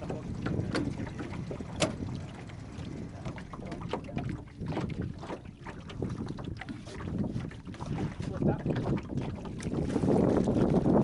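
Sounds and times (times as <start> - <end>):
low rumble: 0.0 - 5.1
wind buffeting microphone: 0.0 - 11.0.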